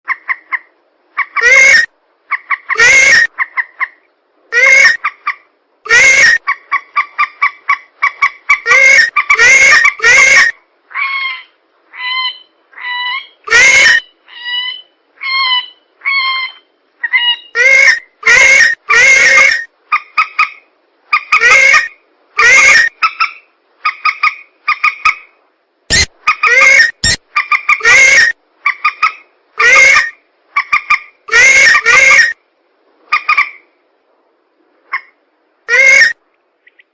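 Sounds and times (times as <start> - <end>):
softer higher bird calls: 8.1 - 25.2.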